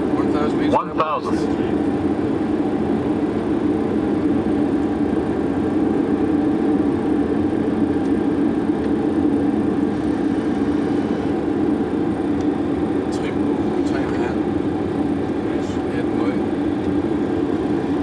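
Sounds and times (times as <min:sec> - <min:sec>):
constant low hum: 0:00.0 - 0:18.0
jet engine noise: 0:00.0 - 0:18.0
airflow rushing: 0:09.8 - 0:18.0.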